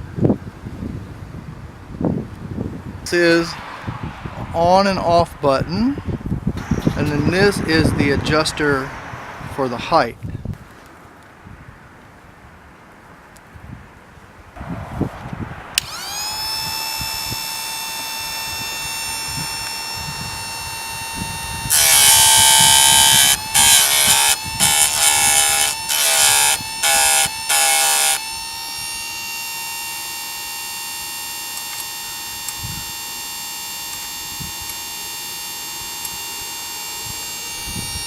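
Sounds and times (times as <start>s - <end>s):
sharpener motor whining: 6.6s - 10.0s, 15.8s - 38.0s
grinding wheel on saw chain: 15.8s - 38.0s.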